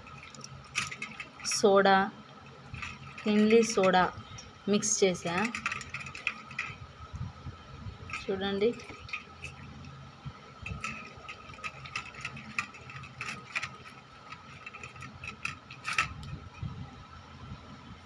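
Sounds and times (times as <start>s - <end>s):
objects clicking and knocking: 0.0s - 1.7s, 2.5s - 4.1s, 5.2s - 6.8s, 8.1s - 10.0s, 10.6s - 16.4s.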